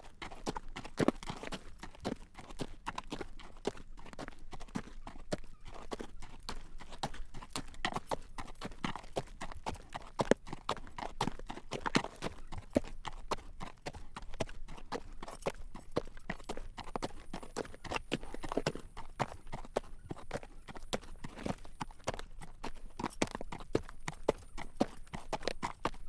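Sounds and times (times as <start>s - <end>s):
horse hooves clopping on road: 0.0s - 26.0s.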